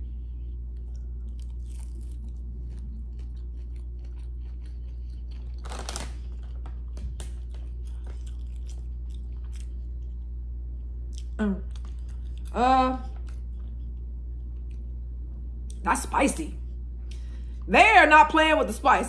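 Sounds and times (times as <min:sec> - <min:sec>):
crunchy chewing: 0:00.1 - 0:15.0.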